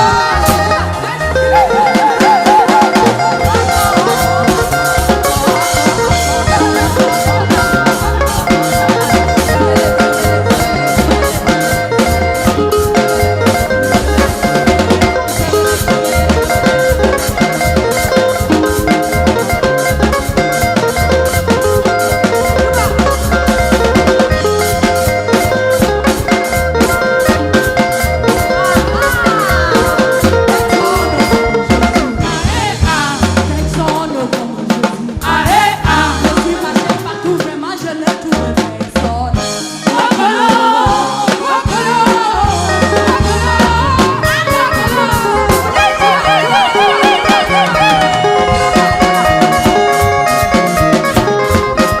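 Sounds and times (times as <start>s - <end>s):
choir singing: 0.0s - 11.8s, 28.4s - 34.6s, 35.2s - 38.0s, 39.8s - 48.2s
drum kit beat: 0.0s - 52.0s
upbeat praise band music: 0.0s - 52.0s.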